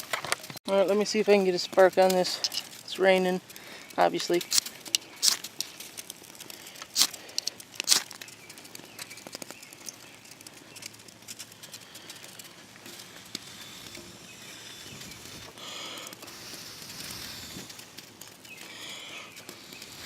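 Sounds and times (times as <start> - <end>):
light rain ticking: 0.0 - 20.0
ferro rod scraping: 4.0 - 8.2, 9.3 - 20.0.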